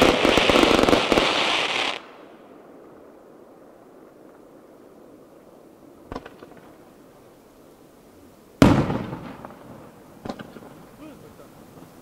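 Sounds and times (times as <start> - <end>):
firework shells bursting: 6.0 - 7.1, 8.6 - 11.0.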